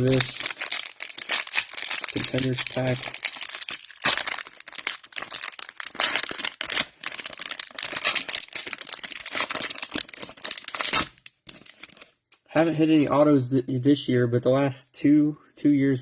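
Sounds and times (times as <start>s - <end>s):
plastic wrapper tearing and crinkling: 0.0s - 12.2s.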